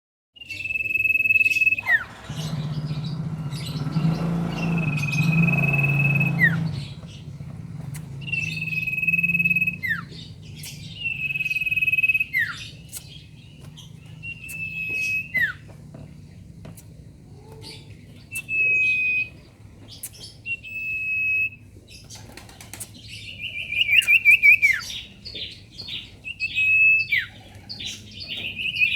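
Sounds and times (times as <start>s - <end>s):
bird whistling: 0.4s - 15.7s, 18.2s - 21.6s, 23.4s - 25.0s, 25.9s - 28.9s.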